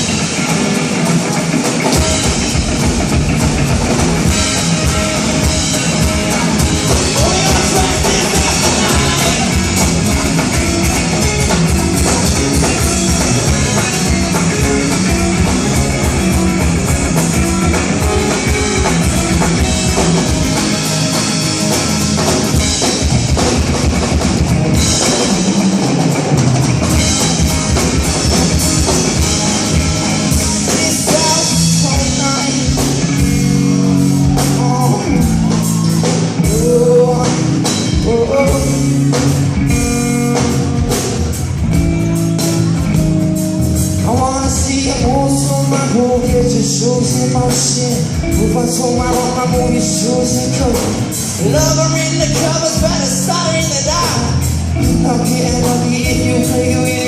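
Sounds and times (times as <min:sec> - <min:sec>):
drum kit: 0:00.0 - 0:57.0
electric guitar: 0:00.0 - 0:57.0
live rock band: 0:00.0 - 0:57.0
person singing: 0:06.3 - 0:20.3, 0:28.7 - 0:39.4, 0:44.0 - 0:57.0.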